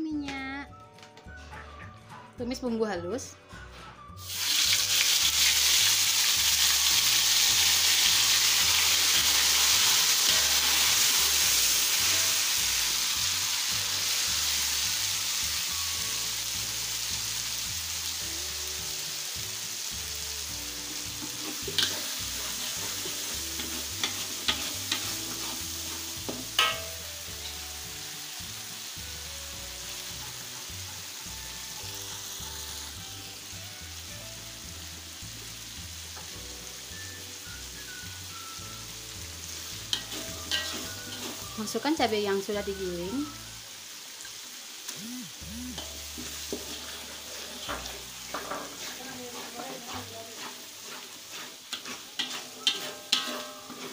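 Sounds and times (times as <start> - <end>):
paste sizzling in hot oil: 4.2 - 53.9
metal spatula clicking on pan: 52.2 - 53.9.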